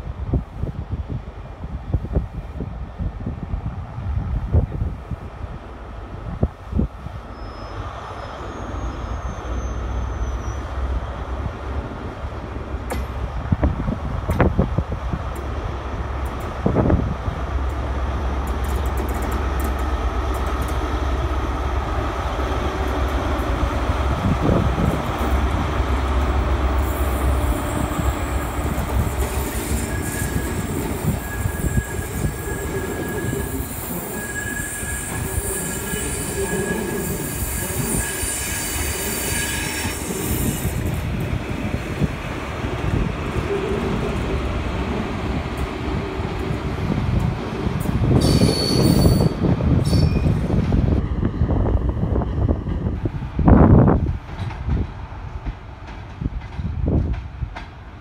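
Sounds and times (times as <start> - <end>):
wheels squealing: 26.9 - 40.8.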